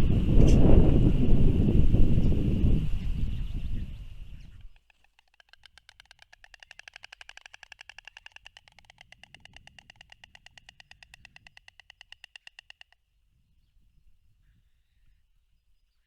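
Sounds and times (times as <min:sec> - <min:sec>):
stork clattering its bill: 0:04.6 - 0:13.0.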